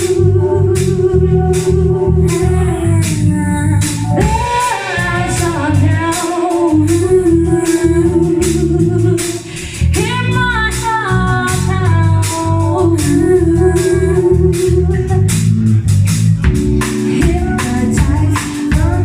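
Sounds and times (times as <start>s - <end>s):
woman singing: 0.0s - 15.4s, 16.8s - 19.0s
bass: 0.0s - 19.0s
drum beat: 4.2s - 7.1s, 16.4s - 19.0s.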